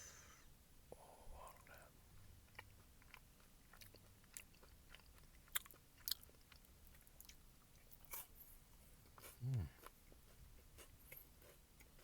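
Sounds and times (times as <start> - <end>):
chewing granola bar: 1.5 - 8.3.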